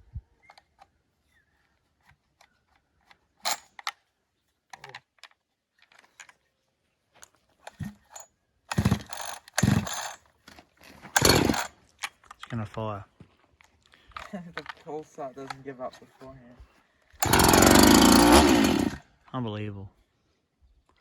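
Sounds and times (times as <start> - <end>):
clicks and knocks of handling: 4.7 - 6.4, 11.8 - 16.2
chainsaw recoil starter pull: 7.7 - 10.2, 10.9 - 11.8, 17.2 - 19.0.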